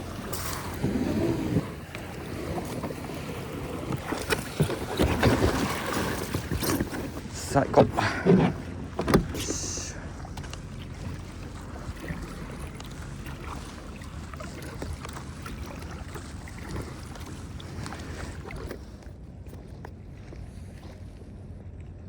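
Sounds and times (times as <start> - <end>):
water and wind rumble: 0.0 - 22.0
light knocks on kayak: 7.8 - 9.5.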